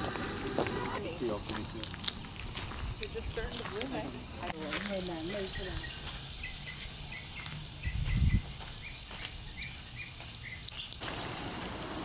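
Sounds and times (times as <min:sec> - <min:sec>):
small bird chirping: 0:05.1 - 0:12.0
low rumble on microphone: 0:07.8 - 0:08.6.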